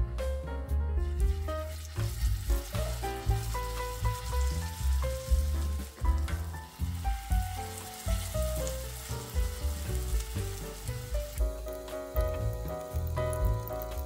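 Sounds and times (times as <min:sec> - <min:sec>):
instrumental background music: 0:00.0 - 0:14.0
batter sizzling in hot oil: 0:01.2 - 0:14.0.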